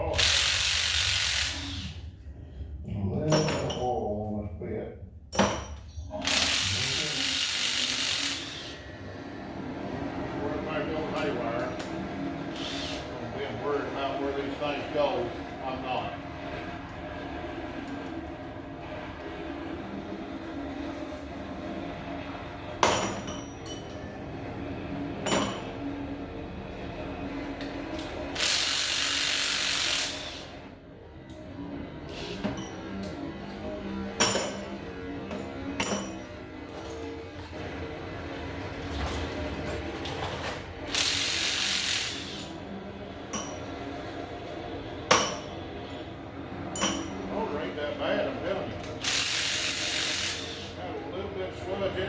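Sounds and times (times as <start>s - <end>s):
low background hum: 0.0s - 52.0s
metallic clanks of tools: 3.2s - 4.0s, 5.3s - 6.4s, 22.8s - 24.1s, 25.2s - 25.8s, 32.4s - 33.2s, 34.2s - 34.7s, 35.3s - 37.1s, 43.3s - 43.7s, 45.1s - 45.6s, 46.7s - 47.3s.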